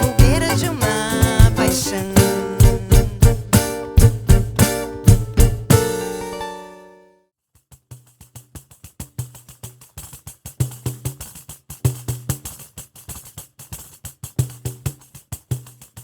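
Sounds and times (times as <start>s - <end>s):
tambourine jingles: 0.0s - 6.1s
short drum strokes: 0.0s - 6.4s.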